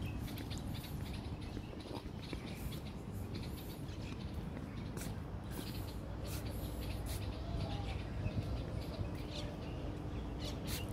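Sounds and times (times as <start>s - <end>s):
small birds chirping: 0.0s - 10.9s.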